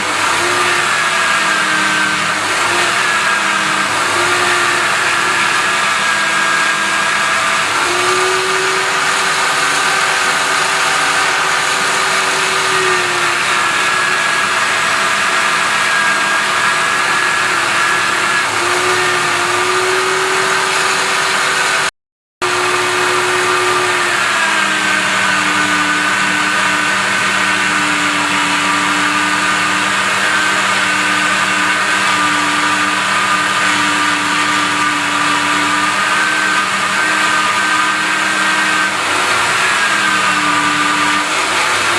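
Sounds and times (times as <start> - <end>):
grinder polishing brush whine: 0.0 - 41.9.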